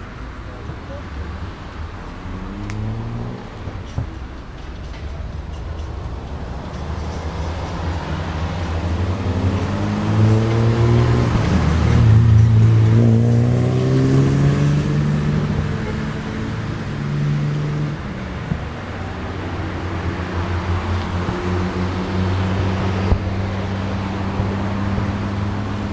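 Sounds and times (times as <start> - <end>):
vehicle engine revving: 2.1 - 3.7, 6.9 - 25.9.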